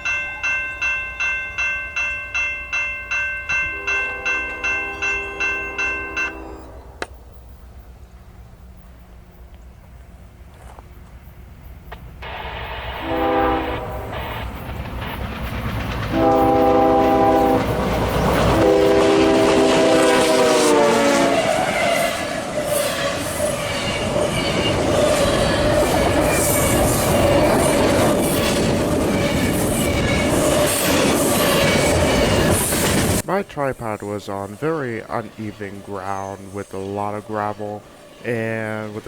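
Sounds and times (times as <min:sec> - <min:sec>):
train wheels rumbling: 0:00.0 - 0:39.0
locomotive air horn: 0:03.6 - 0:07.0, 0:12.2 - 0:14.5, 0:16.1 - 0:25.4
wheels clicking over rail joints: 0:14.6 - 0:20.0.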